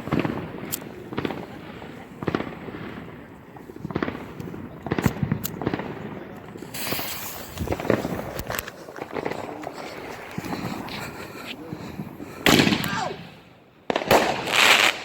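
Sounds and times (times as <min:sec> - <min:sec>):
fireworks banging: 0:00.0 - 0:15.0
firework hiss: 0:06.5 - 0:12.8.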